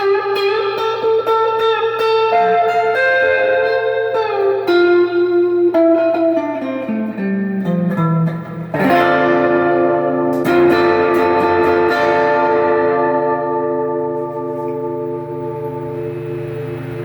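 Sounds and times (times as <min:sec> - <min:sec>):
overdriven electric guitar: 0:00.0 - 0:17.0
low mains hum: 0:09.8 - 0:17.0.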